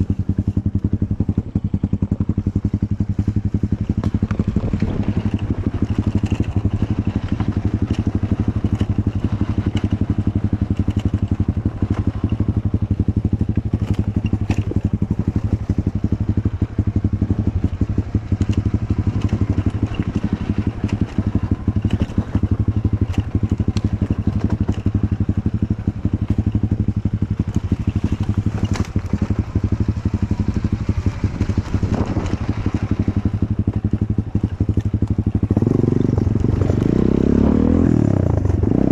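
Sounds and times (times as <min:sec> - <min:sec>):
motorcycle engine at low revs: 0:00.0 - 0:38.9
knocks and clatter: 0:13.6 - 0:16.1.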